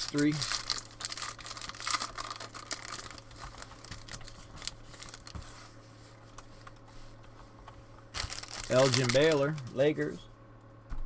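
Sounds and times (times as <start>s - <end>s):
wrapper tearing and crinkling: 0.0s - 5.3s, 8.2s - 9.7s.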